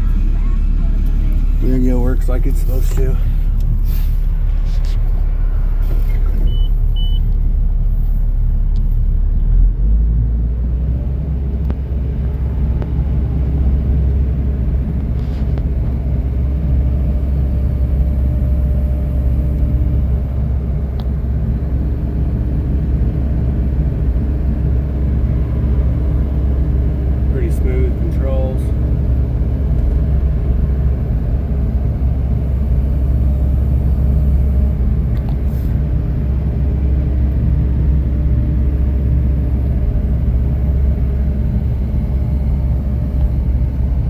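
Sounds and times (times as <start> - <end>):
excavator diesel engine running: 0.0 - 44.0
short high beeps: 6.3 - 7.3.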